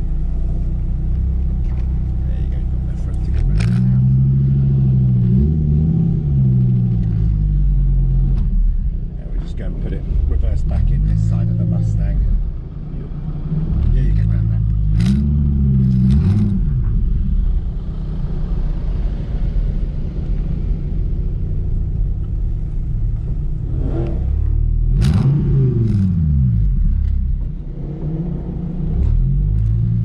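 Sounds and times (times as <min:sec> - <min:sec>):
car engine revving from inside cabin: 0:03.2 - 0:08.5, 0:13.5 - 0:16.9, 0:23.6 - 0:30.0.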